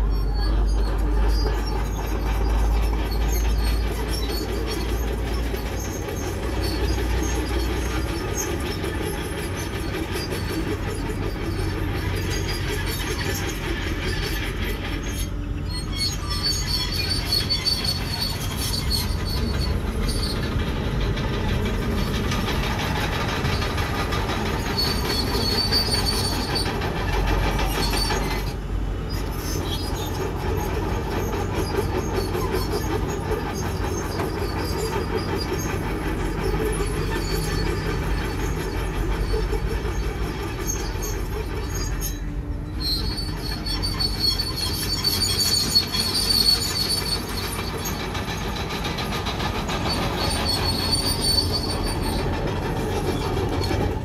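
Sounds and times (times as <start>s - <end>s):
bulldozer engine under load: 0.0s - 54.0s
steel tracks squealing and clanking: 0.0s - 54.0s.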